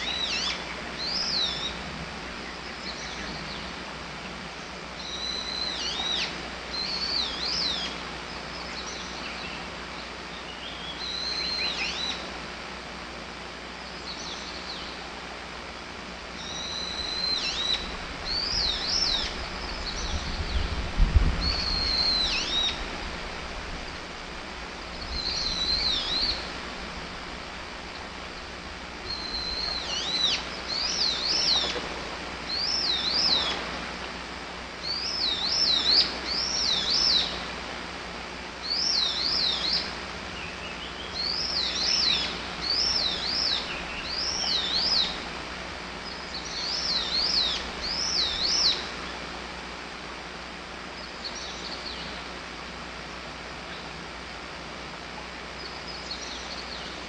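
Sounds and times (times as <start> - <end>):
bird singing whistled phrases: 5.0 - 7.9, 10.6 - 12.2, 16.4 - 20.7, 21.4 - 22.8, 25.1 - 26.4, 29.0 - 31.8.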